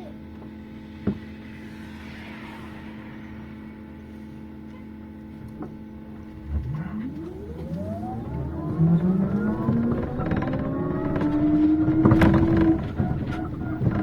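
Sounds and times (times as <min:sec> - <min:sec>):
bus engine humming: 0:05.2 - 0:14.0.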